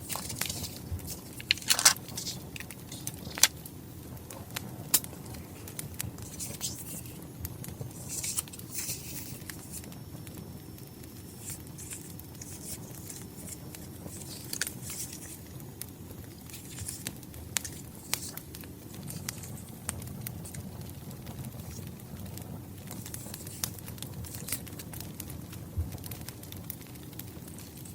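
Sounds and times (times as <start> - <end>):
paper rustling and crinkling: 0.0 - 3.6, 5.2 - 7.2, 7.9 - 10.0, 11.1 - 15.6, 16.2 - 21.9, 22.9 - 24.7
fire popping: 0.0 - 27.9
wood fire crackling: 0.0 - 27.9.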